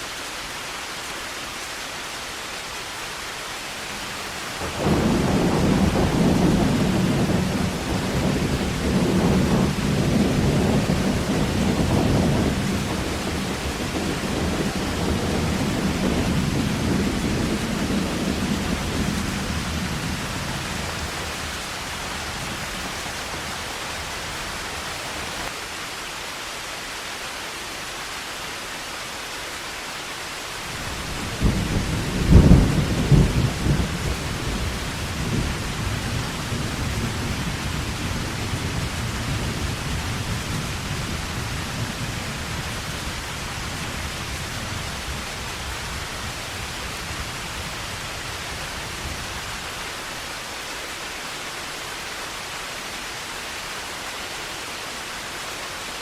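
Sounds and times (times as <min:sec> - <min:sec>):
heavy rain falling: 0:00.0 - 0:56.0
thunderclap rumbling: 0:04.0 - 0:25.5, 0:30.7 - 0:49.7.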